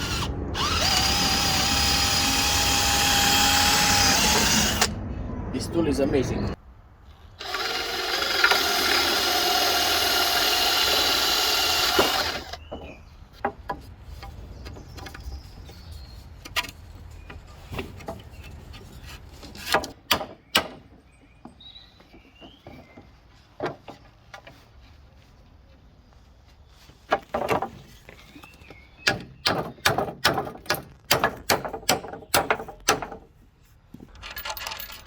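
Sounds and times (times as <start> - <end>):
cordless drill into wood: 0.0 - 4.9, 7.4 - 12.6
wood and tools knocking: 10.9 - 15.3, 16.4 - 24.6, 27.1 - 28.4, 29.0 - 33.3.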